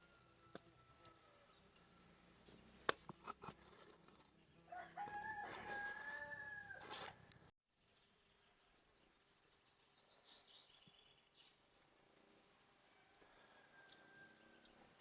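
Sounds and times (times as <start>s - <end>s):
rooster crowing: 4.7s - 7.2s, 13.0s - 14.8s.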